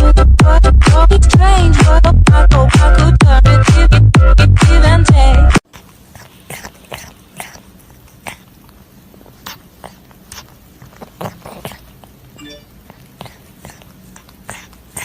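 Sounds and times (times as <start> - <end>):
pet clicks and snuffles: 5.6 - 15.0.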